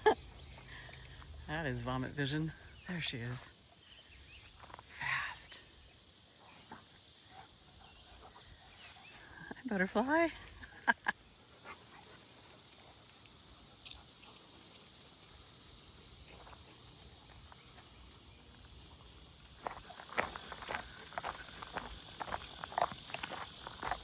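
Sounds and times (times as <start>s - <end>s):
high insect sound: 0.0s - 24.0s
footsteps walking: 11.6s - 24.0s.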